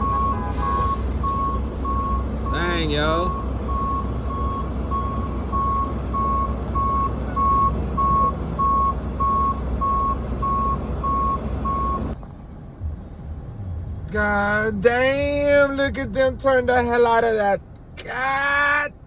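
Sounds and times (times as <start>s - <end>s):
truck reversing alarm beeping: 0.0s - 12.2s
low engine rumble: 0.0s - 19.0s.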